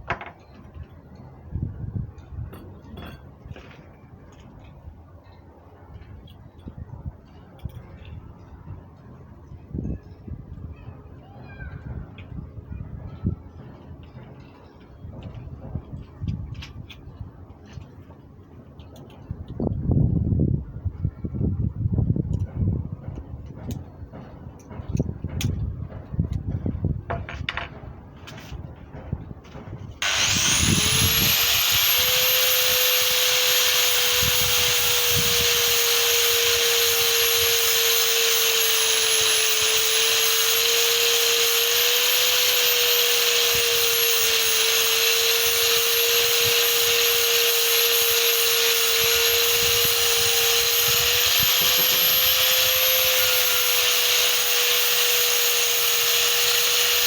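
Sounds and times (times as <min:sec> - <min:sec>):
angle grinder whining: 0:30.0 - 0:57.0.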